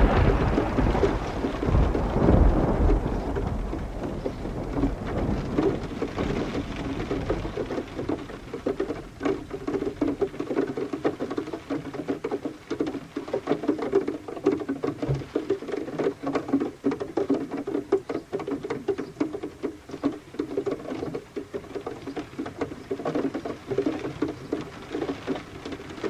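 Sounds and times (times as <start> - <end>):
low rumble of thunder: 0.0 - 9.8
dense irregular drips: 0.0 - 26.0
rain pattering: 0.0 - 26.0.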